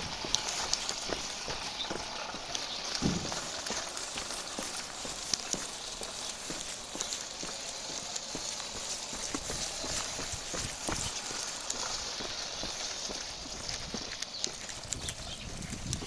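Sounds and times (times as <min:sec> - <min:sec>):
plastic running gear clattering: 0:00.0 - 0:16.0
steady noisy hiss: 0:00.0 - 0:16.0
low knock: 0:03.0 - 0:03.5.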